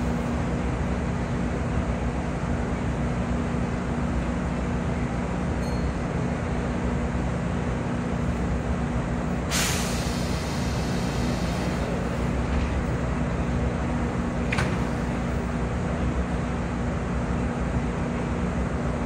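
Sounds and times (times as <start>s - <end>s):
train equipment humming: 0.0s - 19.0s
compressed air hiss: 9.5s - 11.9s.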